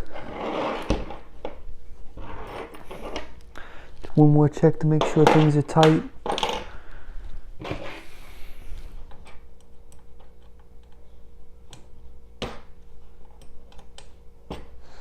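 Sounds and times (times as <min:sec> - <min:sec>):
faint steady hum: 0:00.0 - 0:15.0
tools tapping metal frame: 0:04.9 - 0:06.6.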